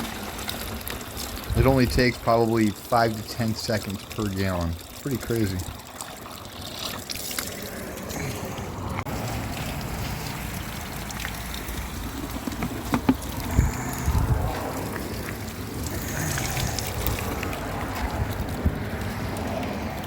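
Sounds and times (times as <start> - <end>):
water running into plastic jug: 0.0 - 20.0
knocks: 12.4 - 13.2.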